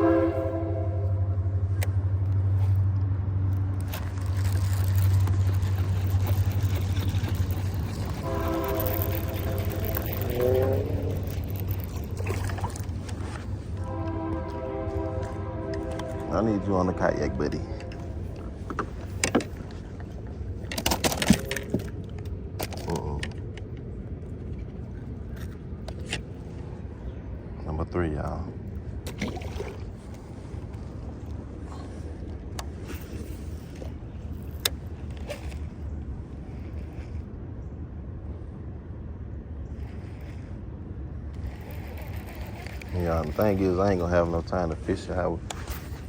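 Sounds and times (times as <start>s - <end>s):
train rumbling past: 0.0s - 5.1s, 5.8s - 12.2s, 13.2s - 19.2s
low wind rumble: 0.0s - 46.0s
fishing gear clicks and knocks: 1.8s - 16.3s, 17.8s - 26.4s, 32.2s - 35.9s, 41.4s - 46.0s.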